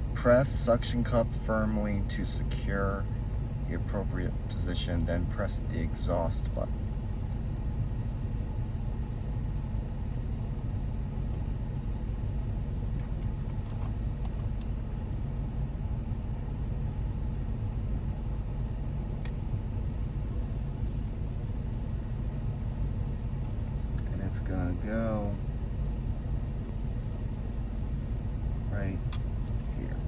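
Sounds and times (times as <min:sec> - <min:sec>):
air conditioning running: 0:00.0 - 0:30.0
car engine idling: 0:00.0 - 0:30.0.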